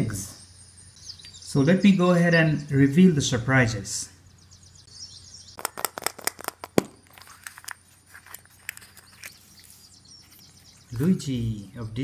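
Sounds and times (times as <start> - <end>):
plastic egg clicking and crackling: 5.6 - 9.4.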